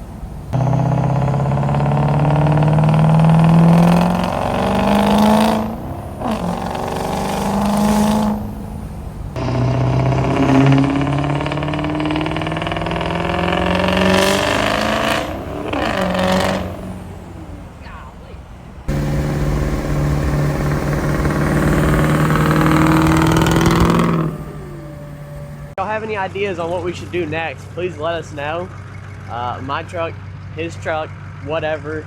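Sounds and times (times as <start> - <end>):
diesel engine revving hard: 0.0 - 17.8, 18.9 - 25.8.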